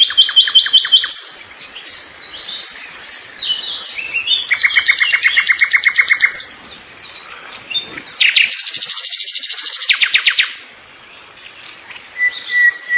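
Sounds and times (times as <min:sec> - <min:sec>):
small birds trilling: 0:00.0 - 0:12.9.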